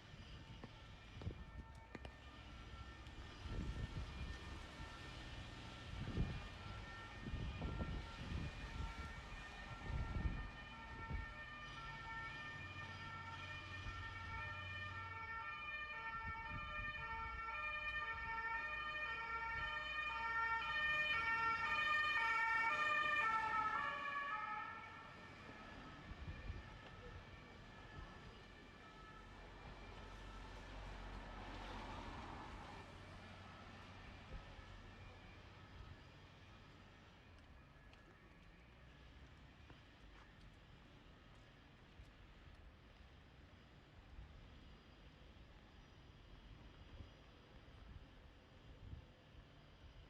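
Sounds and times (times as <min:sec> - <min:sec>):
two-tone emergency siren: 0:00.3 - 0:40.0.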